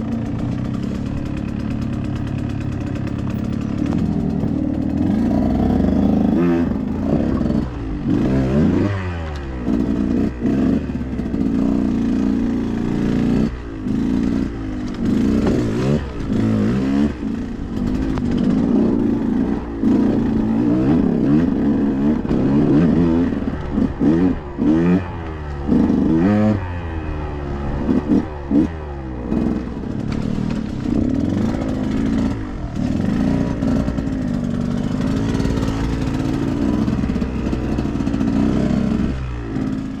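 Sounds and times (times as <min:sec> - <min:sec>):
bike clattering over rough ground: 0:00.0 - 0:08.2, 0:29.3 - 0:38.3
two-stroke dirt bike engine revving: 0:00.0 - 0:40.0.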